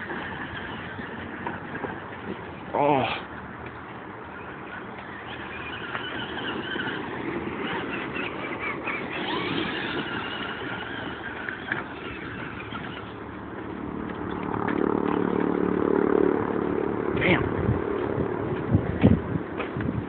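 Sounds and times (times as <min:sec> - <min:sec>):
tyre and chassis noise: 0:00.0 - 0:20.0
electric motor whine: 0:04.2 - 0:15.8.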